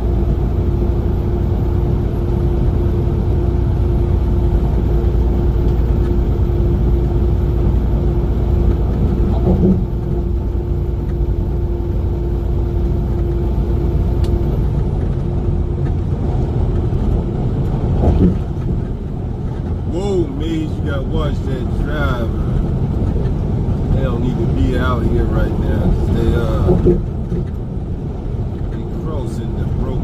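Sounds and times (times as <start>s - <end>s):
constant hum: 0.0s - 30.0s
road noise: 0.0s - 30.0s
truck engine rumble: 0.0s - 30.0s.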